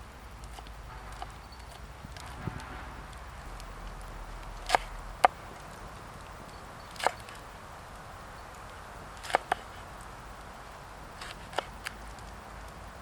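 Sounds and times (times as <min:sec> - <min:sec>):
blade chopping into wood: 0:04.5 - 0:05.4, 0:06.9 - 0:07.4.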